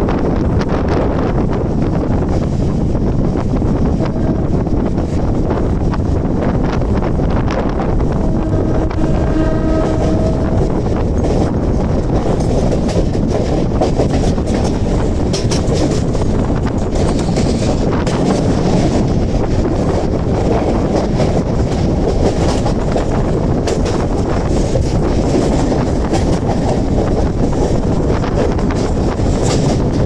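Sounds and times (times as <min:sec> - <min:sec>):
train wheels rumbling on rail: 0:00.0 - 0:30.0
wind on microphone: 0:00.0 - 0:30.0
brief held tone: 0:08.3 - 0:10.7
wheels clicking over rail joints: 0:10.6 - 0:30.0.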